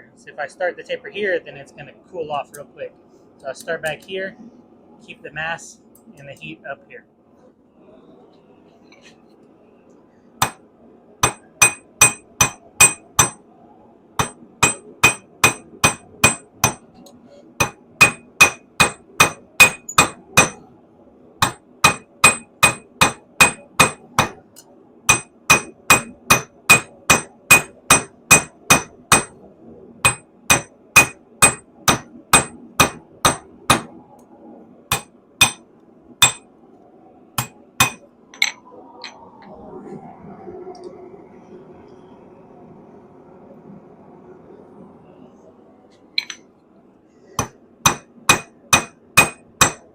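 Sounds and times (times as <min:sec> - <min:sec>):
hammer striking metal on anvil: 0:10.4 - 0:10.6, 0:11.2 - 0:13.4, 0:14.2 - 0:16.9, 0:17.6 - 0:20.6, 0:21.4 - 0:24.4, 0:25.1 - 0:29.4, 0:30.0 - 0:33.9, 0:34.9 - 0:35.6, 0:36.2 - 0:36.4, 0:37.4 - 0:38.6, 0:46.2 - 0:46.4, 0:47.4 - 0:49.9.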